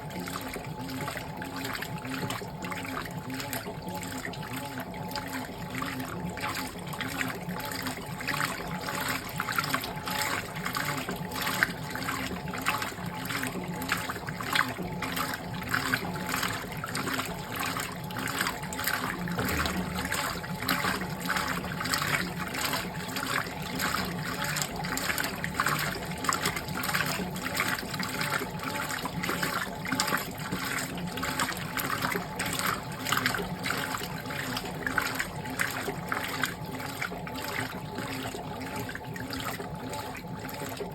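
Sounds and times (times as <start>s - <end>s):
washing machine water sloshing: 0.0s - 40.9s
low steady hum: 19.2s - 25.4s.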